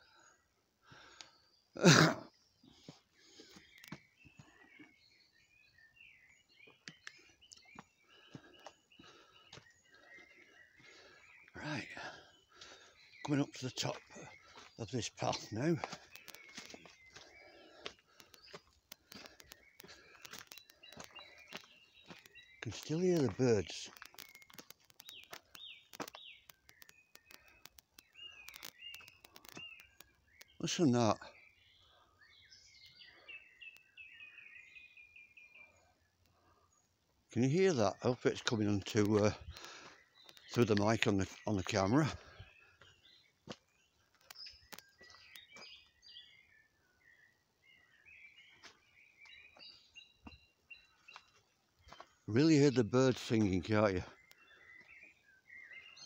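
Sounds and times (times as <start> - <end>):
birds singing faintly: 0.0 - 56.0
faint clicks and taps: 15.3 - 17.2, 17.8 - 30.6, 43.4 - 45.6.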